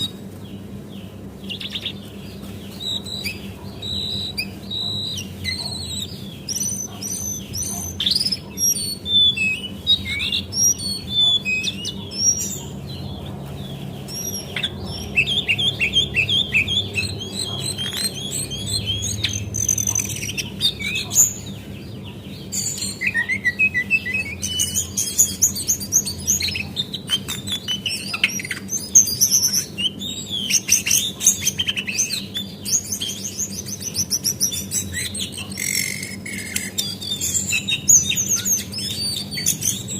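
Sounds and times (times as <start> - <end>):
bird singing high chirps: 0.0 - 39.9
steady low hum: 0.0 - 39.9.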